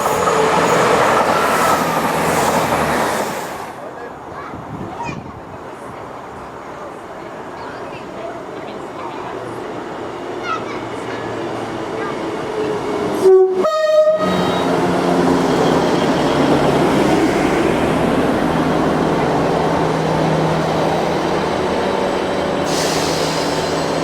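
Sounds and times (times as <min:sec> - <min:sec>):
train passing rumble: 0:00.0 - 0:24.0
two-tone locomotive horn: 0:13.2 - 0:14.8.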